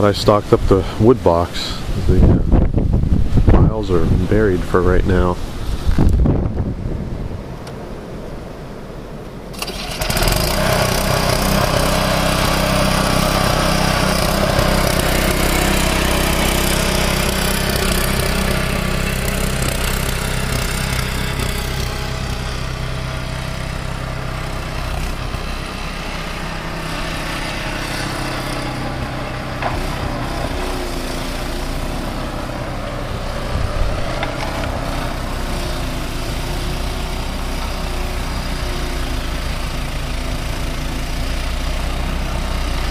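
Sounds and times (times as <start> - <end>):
snow blower engine running: 9.5 - 42.9.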